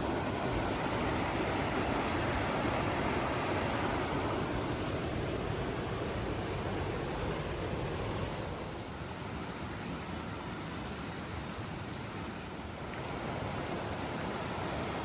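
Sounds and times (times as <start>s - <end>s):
creek rushing: 0.0s - 15.0s.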